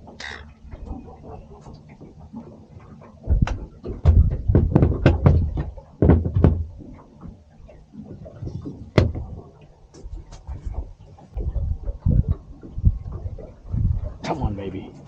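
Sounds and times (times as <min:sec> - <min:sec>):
hard knocks and thumps: 0:03.2 - 0:07.4, 0:08.4 - 0:09.5.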